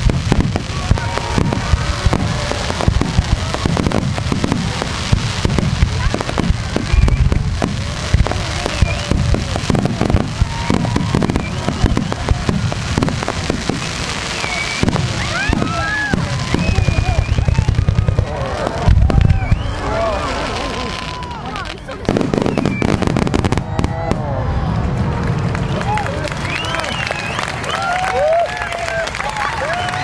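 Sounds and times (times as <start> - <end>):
fireworks shells booming: 0.0 - 21.0, 22.0 - 24.1.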